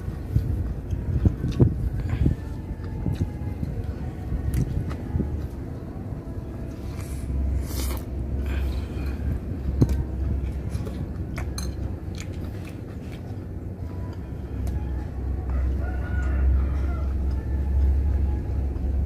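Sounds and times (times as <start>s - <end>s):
low rumble: 0.0s - 19.0s
person chewing crunchy food: 6.7s - 14.8s.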